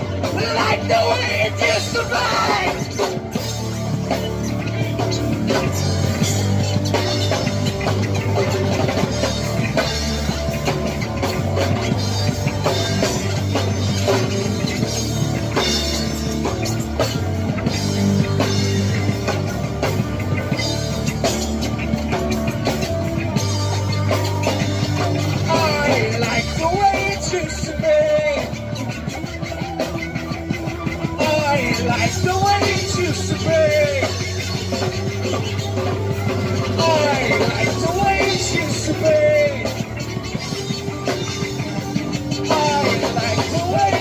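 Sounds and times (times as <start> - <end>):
drum kit beat: 0.0 - 44.0
rock band playing: 0.0 - 44.0.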